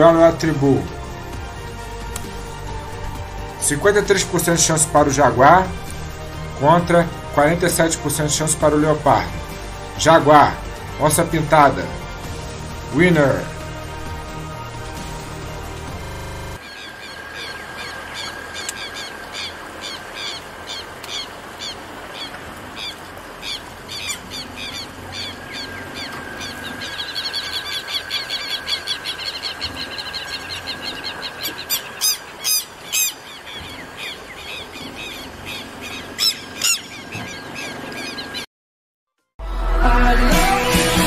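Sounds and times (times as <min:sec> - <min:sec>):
birds chirping: 0:00.0 - 0:38.5
steady high whine: 0:08.6 - 0:21.0, 0:24.9 - 0:32.4
bird trill: 0:16.0 - 0:38.5.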